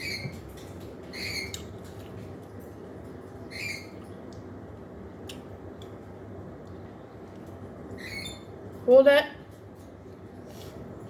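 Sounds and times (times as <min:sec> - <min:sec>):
parrot squeaky chirps: 0:00.0 - 0:00.4, 0:01.1 - 0:01.7, 0:03.4 - 0:04.0, 0:07.9 - 0:08.5.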